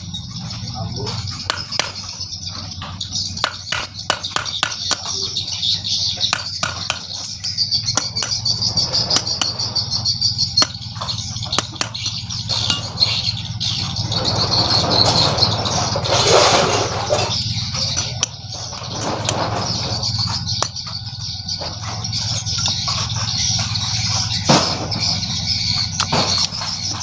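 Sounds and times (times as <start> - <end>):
birds chirping: 0.0 - 27.0
rough noisy sound: 0.0 - 27.0
tools clicking on motorcycle engine: 0.2 - 14.7.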